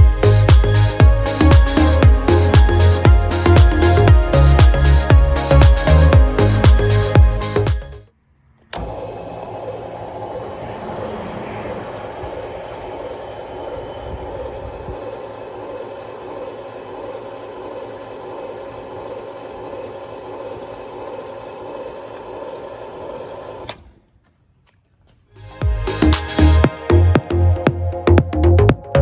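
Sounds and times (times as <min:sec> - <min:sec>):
machine motor humming: 0:00.0 - 0:08.0, 0:08.7 - 0:24.0
light regular ticks: 0:19.1 - 0:22.7.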